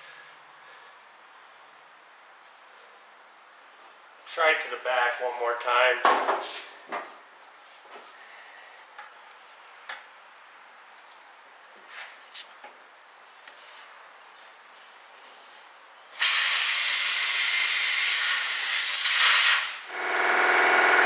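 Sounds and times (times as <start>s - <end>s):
loud hiss of air blowing: 12.7s - 20.0s.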